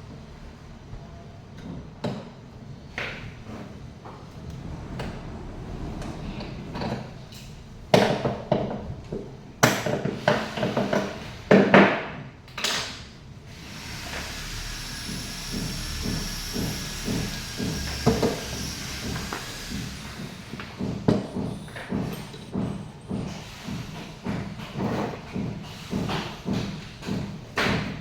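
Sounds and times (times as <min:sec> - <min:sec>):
hard objects knocking: 0:15.5 - 0:28.0.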